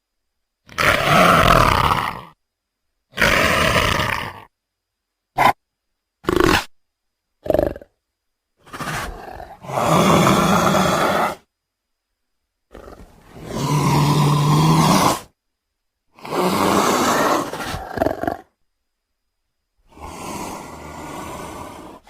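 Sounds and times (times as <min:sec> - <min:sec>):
leopard roaring: 0:00.7 - 0:02.4, 0:03.1 - 0:04.5, 0:08.6 - 0:11.4, 0:12.7 - 0:15.3, 0:16.2 - 0:18.5, 0:19.9 - 0:22.0.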